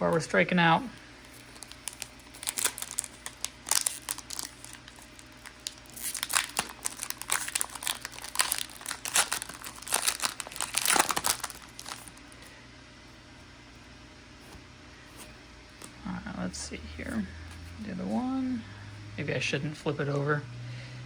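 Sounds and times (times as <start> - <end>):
foil wrapper crinkling: 1.0 - 12.5.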